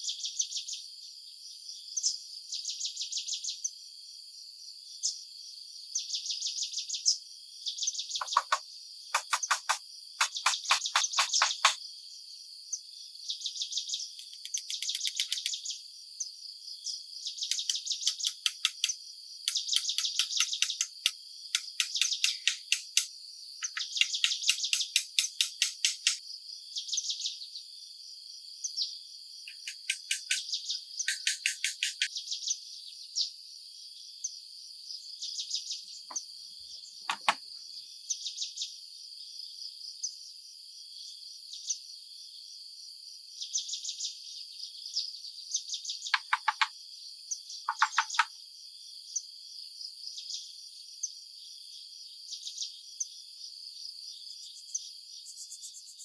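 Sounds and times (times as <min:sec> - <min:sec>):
insects buzzing: 0:08.2 - 0:08.6, 0:09.2 - 0:11.8, 0:14.2 - 0:15.6, 0:17.5 - 0:26.2, 0:29.5 - 0:32.1, 0:53.8 - 0:56.0
rapid pulsed chirping: 0:08.2 - 0:08.6, 0:09.2 - 0:11.8, 0:14.2 - 0:15.6, 0:17.5 - 0:26.2, 0:29.5 - 0:32.1, 0:54.2 - 0:56.0.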